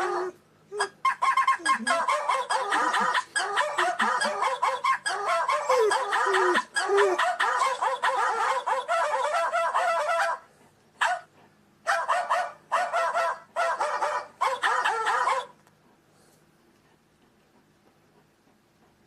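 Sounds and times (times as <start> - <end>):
dog whining and yipping: 0.0 - 10.4, 14.4 - 15.5.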